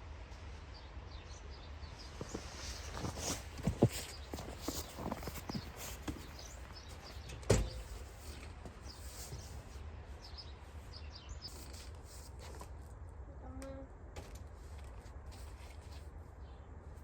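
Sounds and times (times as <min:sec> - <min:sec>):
small birds chirping: 0:00.8 - 0:12.5.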